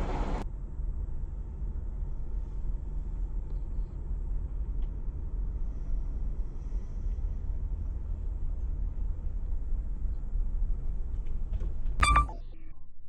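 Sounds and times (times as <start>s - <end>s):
steady low rumble: 0.4s - 13.0s
faint tick: 4.8s - 5.0s.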